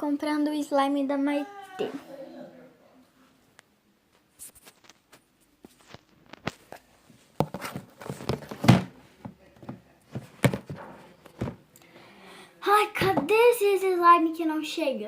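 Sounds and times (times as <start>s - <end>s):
knocks and thumps: 7.4s - 11.6s, 13.0s - 13.3s.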